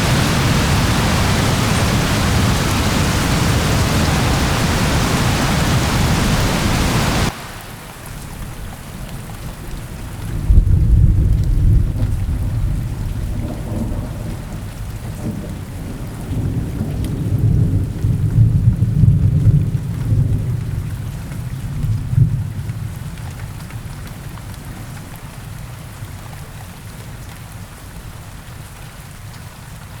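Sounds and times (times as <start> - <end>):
low rolling thunder: 0.0 - 7.4, 8.0 - 23.2
steady rain: 0.0 - 30.0.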